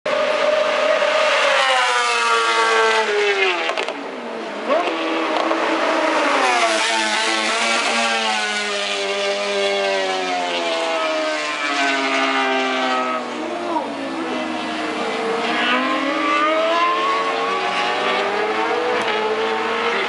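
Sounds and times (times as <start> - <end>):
racing motorcycle engine revving: 4.6 - 20.0.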